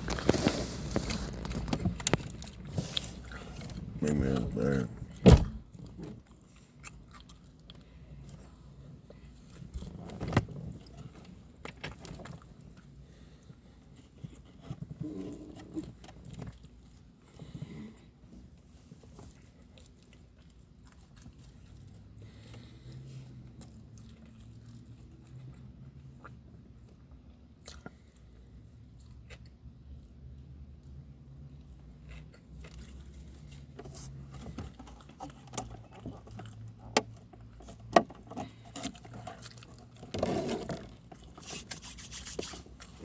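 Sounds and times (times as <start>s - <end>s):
person chewing crunchy food: 0.0s - 43.0s.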